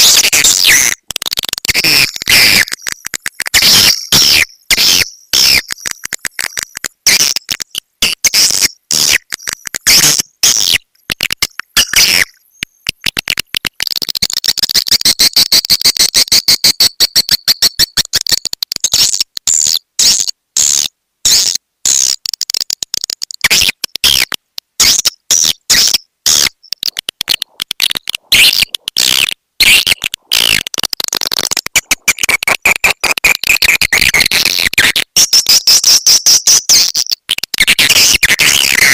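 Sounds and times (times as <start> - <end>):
swiftlet chirps and clicks: 2.1 - 4.1, 5.0 - 7.8, 9.2 - 10.0, 26.4 - 33.2.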